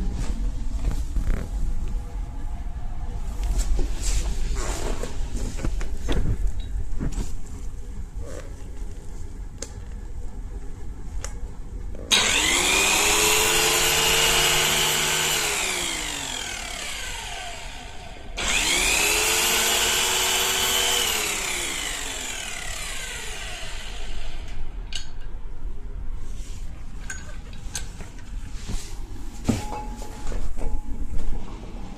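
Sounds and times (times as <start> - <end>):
electric grass trimmer whining: 12.1 - 24.6.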